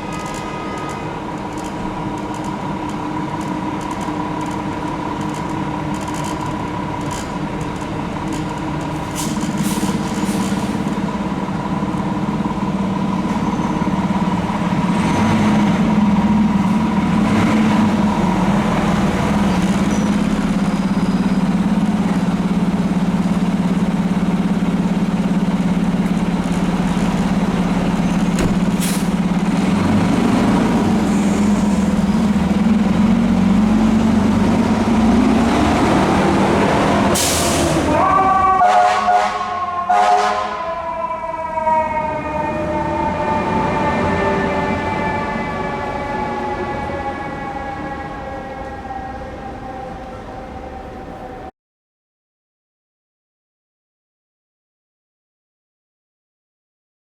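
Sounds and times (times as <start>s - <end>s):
fire engine diesel engine: 0.0s - 51.5s
air brake hisses: 37.2s - 37.8s.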